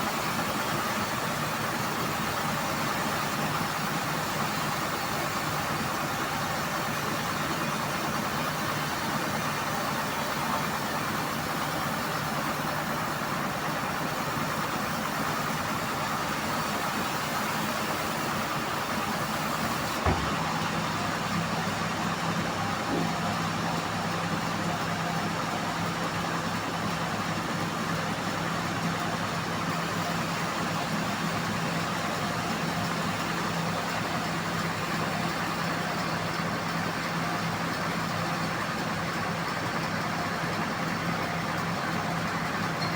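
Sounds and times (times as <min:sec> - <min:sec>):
band-saw mill humming: 0:07.6 - 0:24.4.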